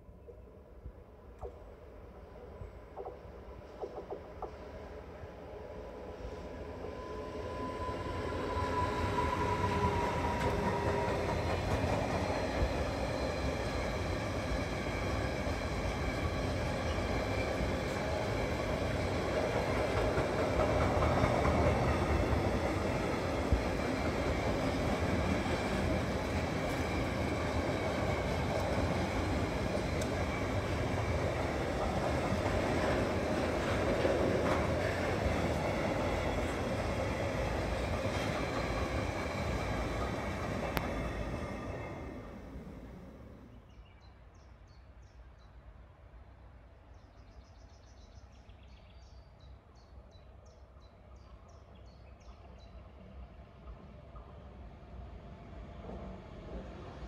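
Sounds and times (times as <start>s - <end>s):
train wheels rumbling on rail: 2.5s - 43.5s, 52.4s - 57.0s.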